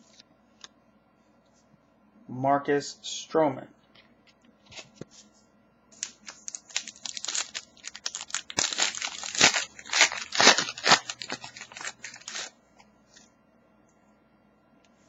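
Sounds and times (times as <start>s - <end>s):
card packaging crinkling: 6.0s - 12.6s.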